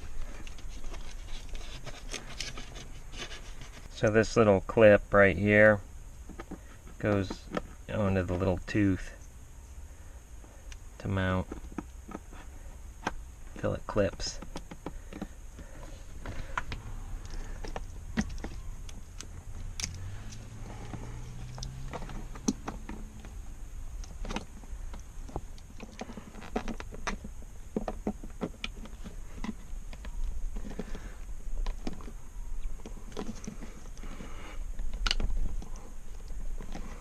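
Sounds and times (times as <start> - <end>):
low hum: 14.3 - 37.0.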